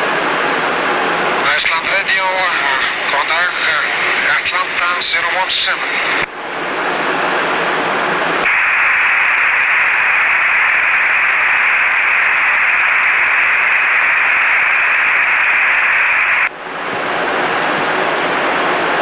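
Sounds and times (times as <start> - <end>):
radio static hiss: 1.4 - 6.3, 8.4 - 16.5.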